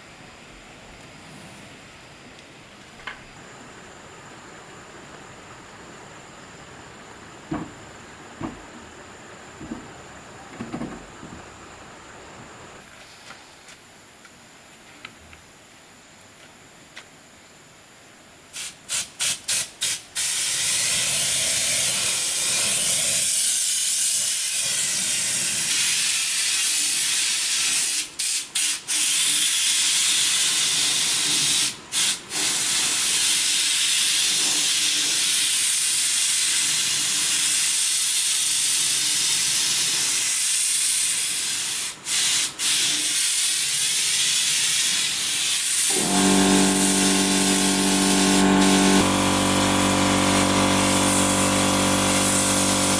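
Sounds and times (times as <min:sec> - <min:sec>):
loud steady hiss: 0:00.0 - 0:52.9
motor hum: 0:45.9 - 0:52.9.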